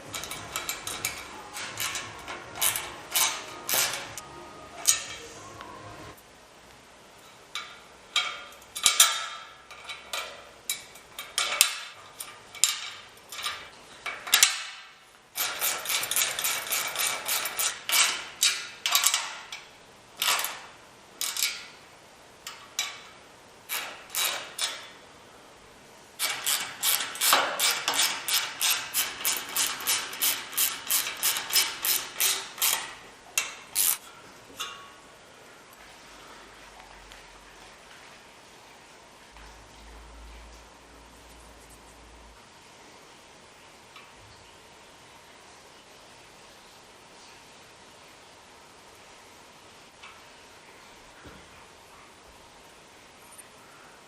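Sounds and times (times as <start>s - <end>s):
ratchet wrench clicking: 0.1s - 4.2s, 15.4s - 19.3s, 23.7s - 24.9s, 26.2s - 34.0s.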